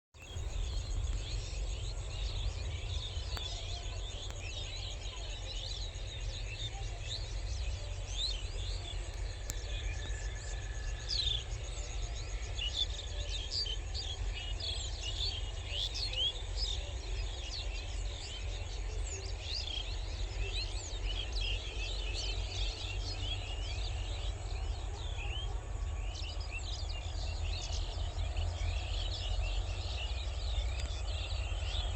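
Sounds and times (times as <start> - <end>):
low rumble: 0.2 - 5.1
small birds chirping: 0.2 - 31.9.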